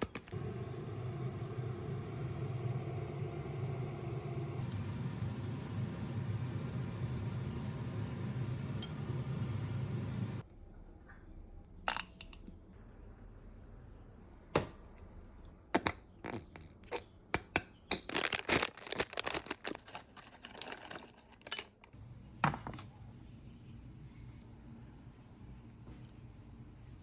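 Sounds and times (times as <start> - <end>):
utensils and containers clinking: 16.3 - 22.8.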